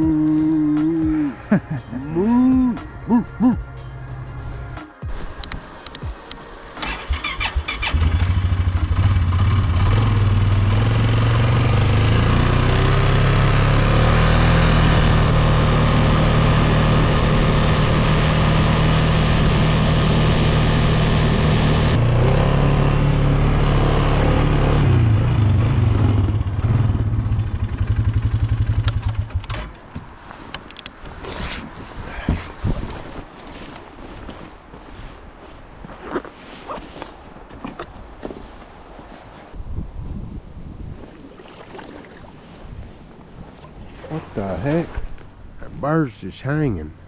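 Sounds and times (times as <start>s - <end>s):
engine running at high revs: 6.8s - 29.6s.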